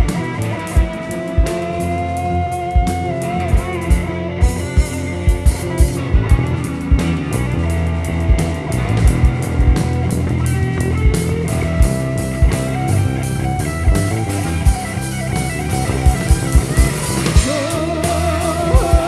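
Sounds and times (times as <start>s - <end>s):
rock guitars: 0.0s - 19.0s
sustained bass line: 0.0s - 19.0s
kick drum beats: 2.8s - 7.2s.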